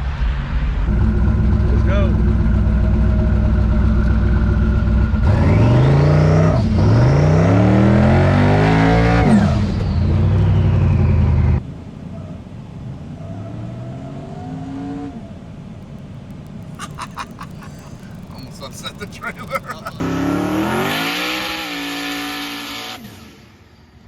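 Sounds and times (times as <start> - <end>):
race car engine revving: 5.1 - 10.7, 16.5 - 23.3.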